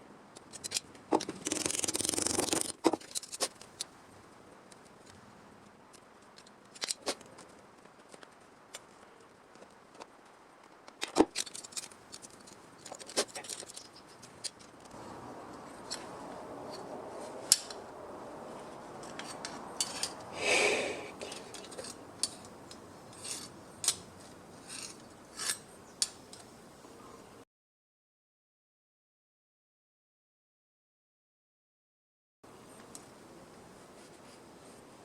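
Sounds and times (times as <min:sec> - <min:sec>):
metallic clicks and clinks: 0:19.0 - 0:20.3, 0:21.2 - 0:24.0.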